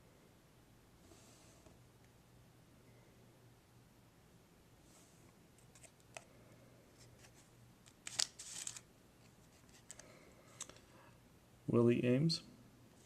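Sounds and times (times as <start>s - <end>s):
card rustle: 5.6s - 6.3s, 6.9s - 10.9s
trading cards sliding and clicking: 7.2s - 8.8s.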